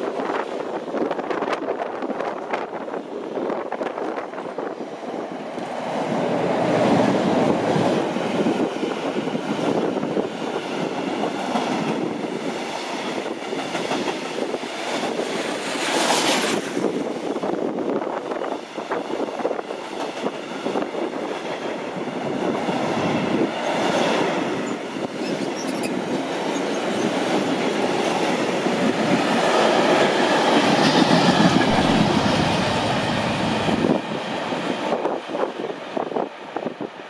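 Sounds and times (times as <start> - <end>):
freight wagons rumbling over rails: 24.4 - 35.8.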